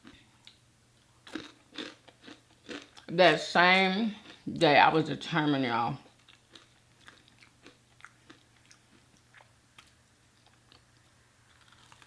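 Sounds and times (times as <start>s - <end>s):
chewing with wet mouth clicks: 6.2s - 10.8s.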